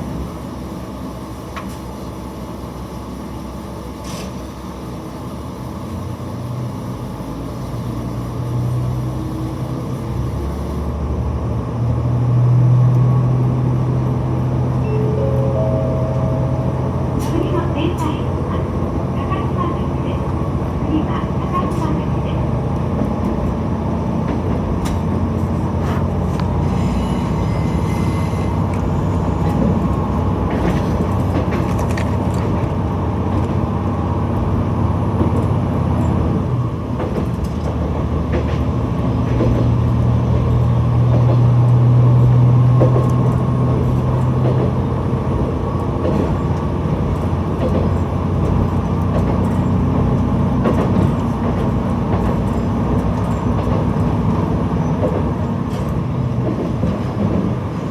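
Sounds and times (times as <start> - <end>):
railcar engine drone: 0.0 - 57.9
wheels clicking on rails: 35.1 - 57.8.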